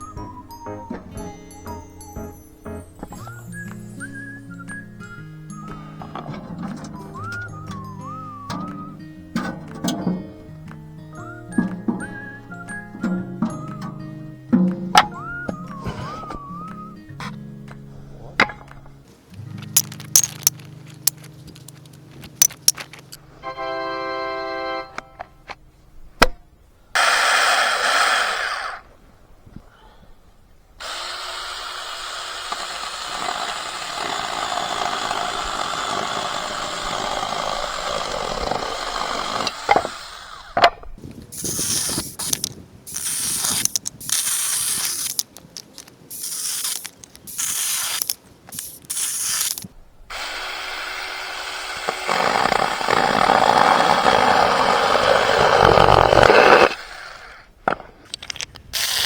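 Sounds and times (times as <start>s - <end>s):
chainsaw cutting wood: 27.0s - 28.9s, 30.8s - 45.2s, 46.1s - 57.9s, 58.8s - 59.0s.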